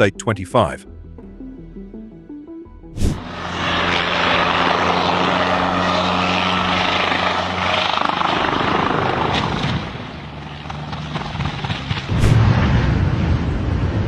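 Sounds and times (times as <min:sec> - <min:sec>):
aircraft engine droning: 0:03.0 - 0:11.0
loud low rumble: 0:12.1 - 0:13.6.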